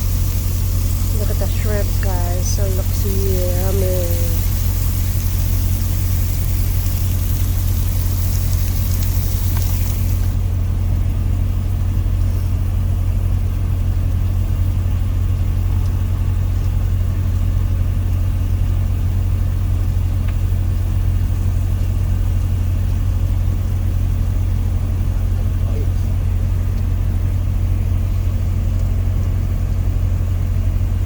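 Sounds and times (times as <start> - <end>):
high hiss: 0.0 - 10.5
diesel truck engine idling: 0.0 - 17.6.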